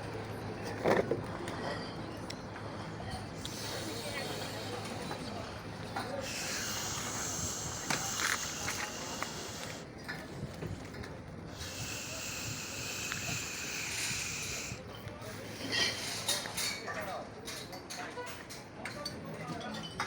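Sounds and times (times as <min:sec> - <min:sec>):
steady hiss: 0:03.4 - 0:05.1, 0:06.2 - 0:09.9, 0:11.5 - 0:14.8.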